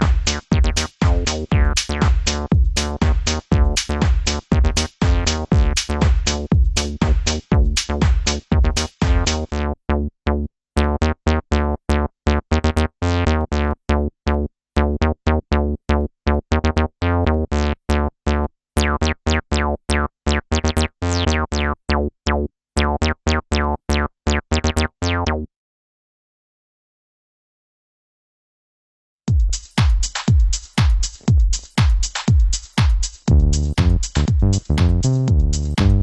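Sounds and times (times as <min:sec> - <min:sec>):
synthesizer acid bassline: 0:00.0 - 0:09.8, 0:33.3 - 0:36.0.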